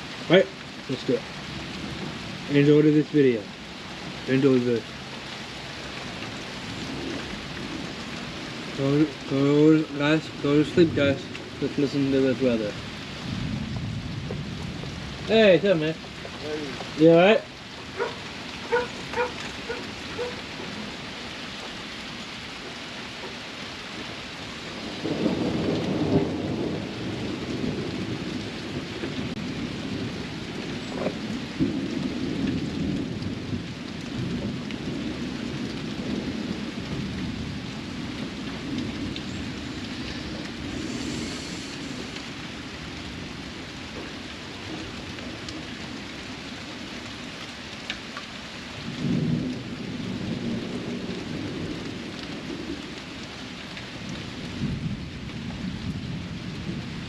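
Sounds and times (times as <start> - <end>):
heavy rain falling: 0.0 - 57.0
rolling thunder: 6.6 - 21.0, 24.7 - 46.3, 48.8 - 52.9, 54.4 - 57.0.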